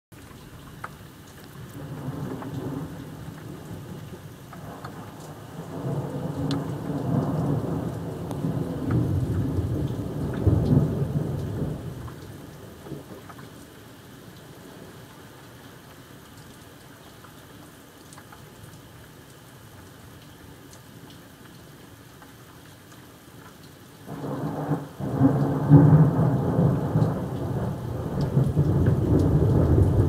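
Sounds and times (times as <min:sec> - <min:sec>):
steady rain: 0:00.1 - 0:30.0
thunder rumbling: 0:01.8 - 0:13.1, 0:24.1 - 0:30.0
water dripping: 0:06.4 - 0:15.2, 0:15.8 - 0:24.3, 0:26.2 - 0:30.0.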